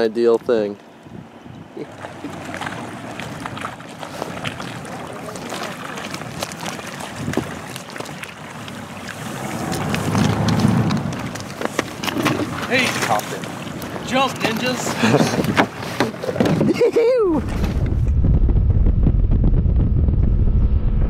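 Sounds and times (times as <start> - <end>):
wind noise on microphone: 1.1 - 1.8, 7.1 - 7.7, 9.2 - 12.6, 15.1 - 21.0
water splashing against boat hull: 1.8 - 18.1
low rumble: 9.3 - 11.5, 17.4 - 21.0.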